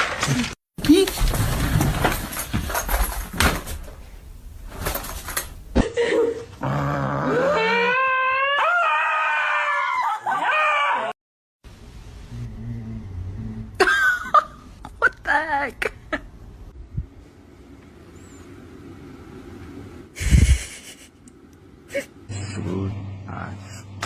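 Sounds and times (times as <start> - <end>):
dog howling: 7.2 - 11.1.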